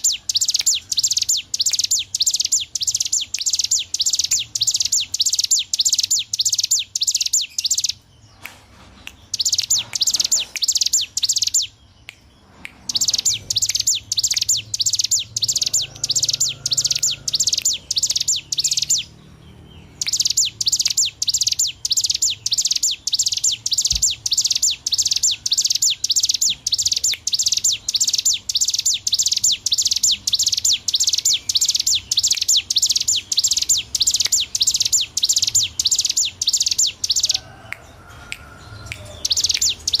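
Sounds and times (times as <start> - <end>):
bird singing sharp high notes: 19.8 - 37.4.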